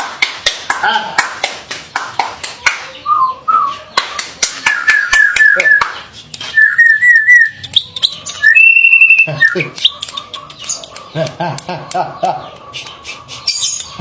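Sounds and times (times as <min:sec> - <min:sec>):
starling whistled trills: 0:04.7 - 0:10.9
starling clicks: 0:07.3 - 0:08.4, 0:09.4 - 0:14.0.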